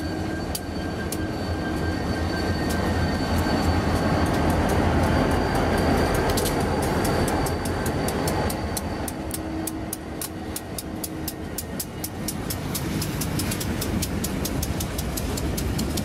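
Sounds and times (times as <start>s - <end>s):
diesel locomotive rumble: 0.0s - 16.0s
freight cars rolling rumble: 0.0s - 16.0s
rapid even clicking: 6.1s - 16.0s.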